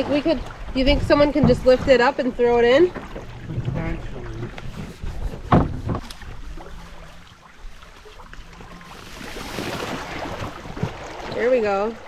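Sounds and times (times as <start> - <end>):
canoe knocking against log: 0.8 - 2.0, 2.9 - 6.5.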